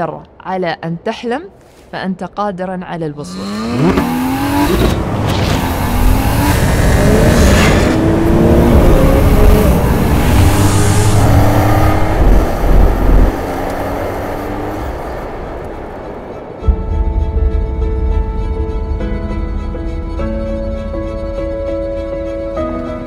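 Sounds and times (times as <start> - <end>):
car engine revving hard: 3.3 - 16.3.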